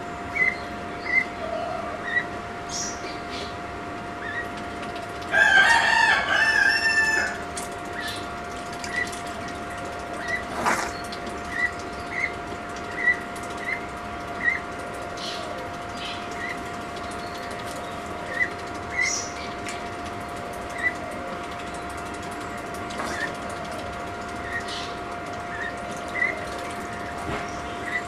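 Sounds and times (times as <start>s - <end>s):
machine hum: 0.0s - 28.0s
water splashing: 6.8s - 28.0s.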